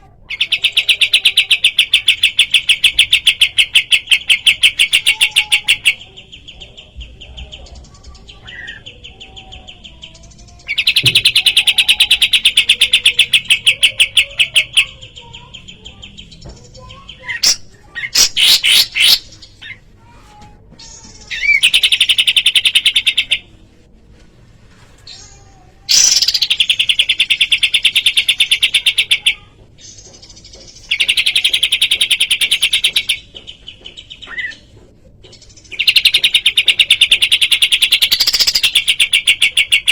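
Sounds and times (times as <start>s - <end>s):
loud sharp bird chirps: 8.3s - 19.8s, 25.9s - 30.2s.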